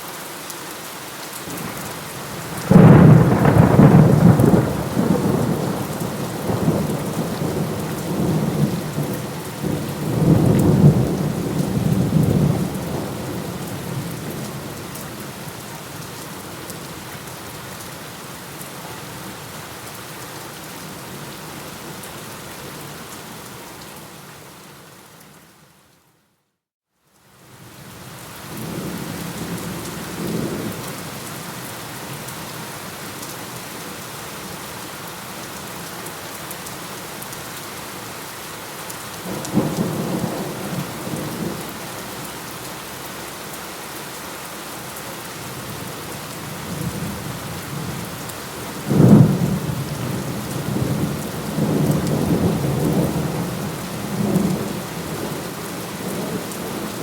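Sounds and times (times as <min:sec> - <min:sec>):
steady rain: 0:00.0 - 0:26.3, 0:27.0 - 0:57.0
rolling thunder: 0:02.4 - 0:14.4, 0:48.7 - 0:55.4.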